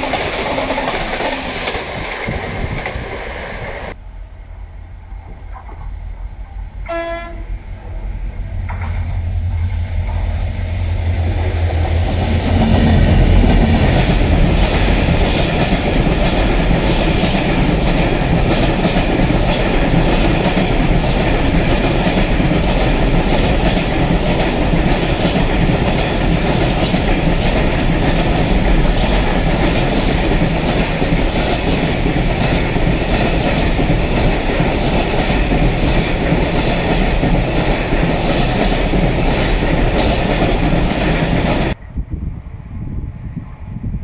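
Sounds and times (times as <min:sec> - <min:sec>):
freight train wheels rumbling: 0:00.0 - 0:44.0.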